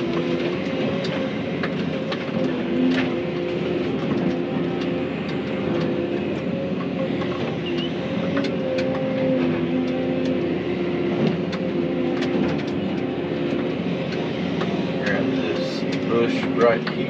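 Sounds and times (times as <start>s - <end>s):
excavator engine and hydraulics: 0.0s - 17.0s
sharp clicks and cracks: 11.2s - 17.0s.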